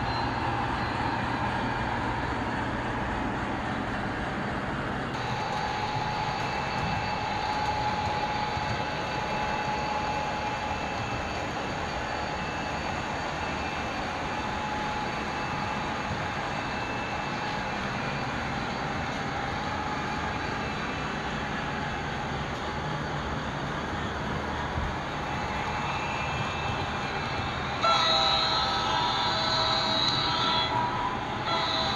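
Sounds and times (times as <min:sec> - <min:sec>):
faint thin whine: 0:05.2 - 0:22.3.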